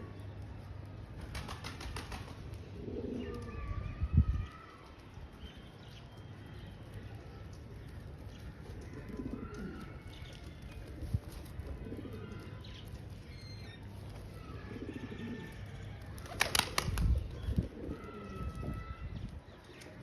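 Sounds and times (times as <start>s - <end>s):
wings flapping: 1.2s - 2.6s, 16.2s - 17.4s
pigeons cooing: 16.2s - 18.7s.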